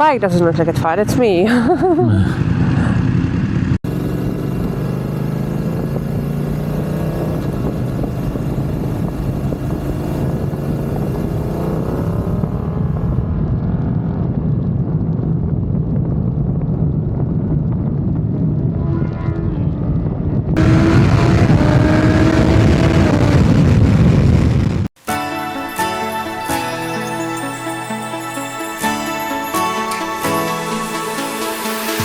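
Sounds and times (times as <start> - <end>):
motorcycle engine running: 2.4 - 13.8, 16.3 - 24.8
wind rush on microphone: 6.9 - 24.9.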